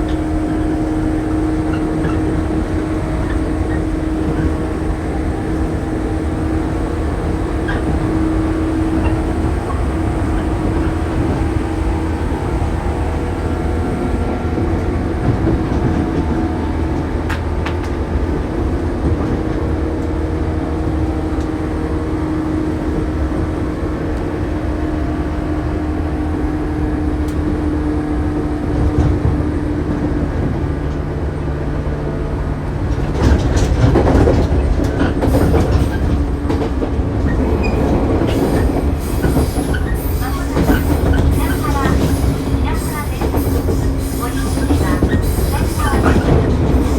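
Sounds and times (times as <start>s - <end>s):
electric train motor hum: 0.0s - 17.8s, 31.3s - 46.9s
wheels rumbling on rail: 0.0s - 46.9s
wheels clattering over rail joints: 32.8s - 46.9s.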